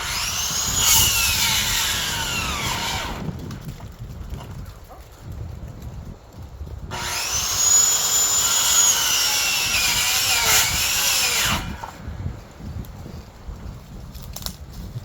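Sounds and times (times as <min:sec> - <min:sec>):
power saw cutting wood: 0:00.0 - 0:03.3, 0:06.9 - 0:12.0.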